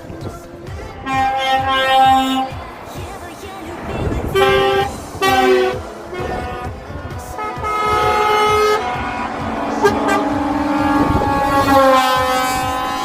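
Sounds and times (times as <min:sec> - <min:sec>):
engines rumbling: 0:00.0 - 0:13.0
truck horns blowing: 0:00.8 - 0:02.9, 0:03.9 - 0:13.0.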